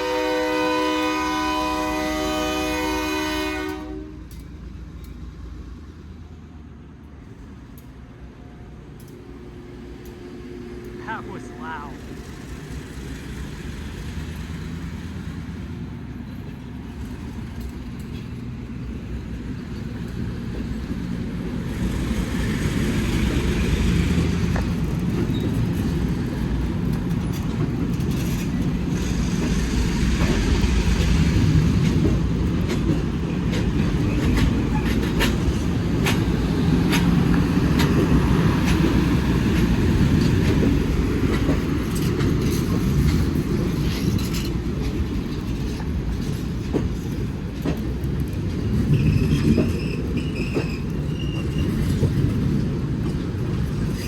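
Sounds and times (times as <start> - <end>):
train rumbling: 0.0 - 54.0
wheels clicking over rails: 21.8 - 54.0.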